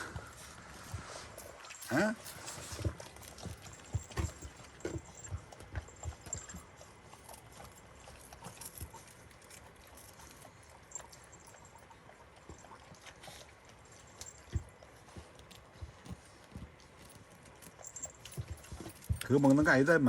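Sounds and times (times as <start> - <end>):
small bells tinkling: 0.0 - 8.9, 17.0 - 20.0
puppies suckling: 0.0 - 20.0.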